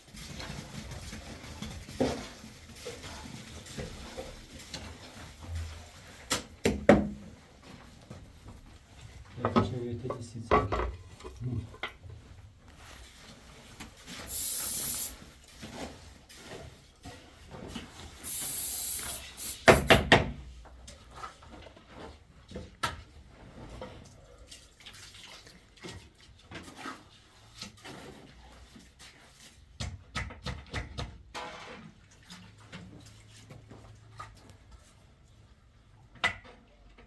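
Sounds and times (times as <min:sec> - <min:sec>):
water running: 0:14.1 - 0:15.5, 0:18.2 - 0:19.8.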